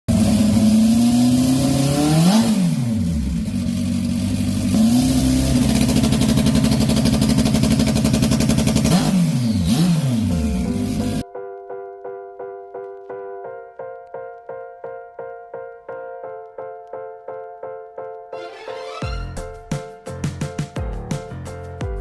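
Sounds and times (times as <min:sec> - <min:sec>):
motorcycle engine revving: 0:00.1 - 0:11.2.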